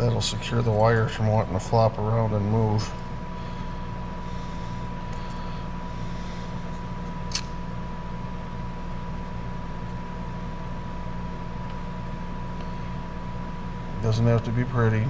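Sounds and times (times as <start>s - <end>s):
fan whirring: 0.0s - 15.0s
low electrical hum: 0.0s - 15.0s
thin steady whine: 0.0s - 15.0s
sharp click: 7.3s - 7.6s.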